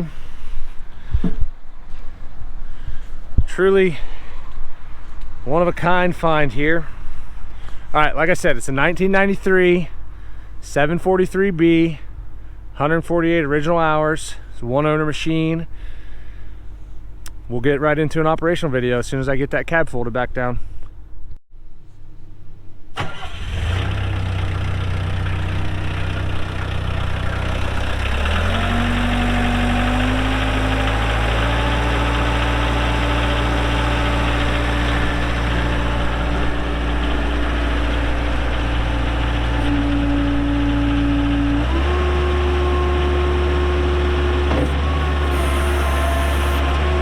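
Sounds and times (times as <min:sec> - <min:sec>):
diesel engine starting and running: 0:22.9 - 0:47.0.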